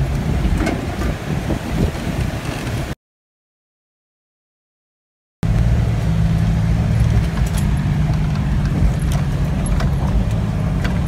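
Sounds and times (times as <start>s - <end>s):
water and wind hiss: 0.0s - 3.0s
engine droning inside cab: 5.4s - 11.0s.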